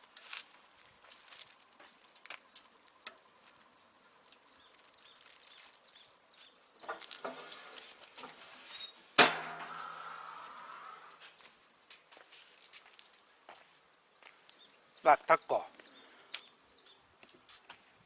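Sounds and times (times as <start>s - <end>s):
metal grill parts clicking: 6.8s - 10.1s
loud ringing metallic clank: 9.2s - 10.0s.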